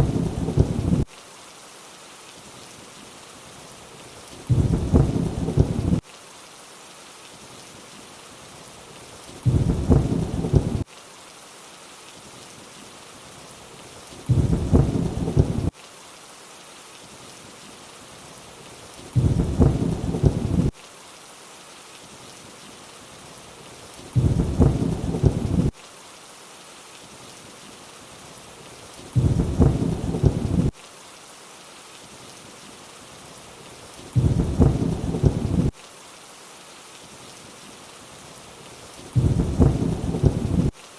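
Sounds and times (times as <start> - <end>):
low rumble of thunder: 0.0 - 1.0, 4.5 - 6.0, 9.4 - 10.8, 14.3 - 15.7, 19.2 - 20.7, 24.2 - 25.7, 29.2 - 30.7, 34.2 - 35.7, 39.2 - 40.7
steady rain hiss: 0.0 - 40.9.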